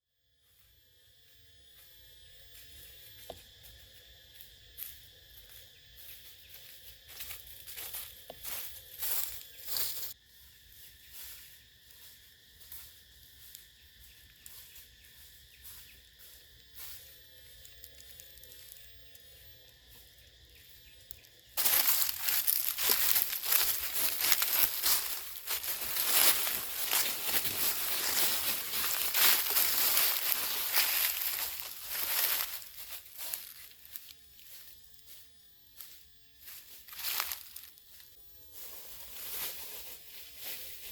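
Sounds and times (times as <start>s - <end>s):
drone of forest insects: 0.0s - 40.9s
crackly crumpling and tearing: 21.1s - 34.0s
soft rustling: 21.6s - 34.1s.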